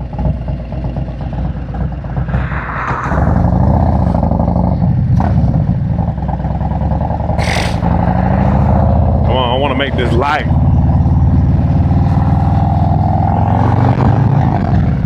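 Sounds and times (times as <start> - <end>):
motorcycle engine idling: 0.0 - 2.2.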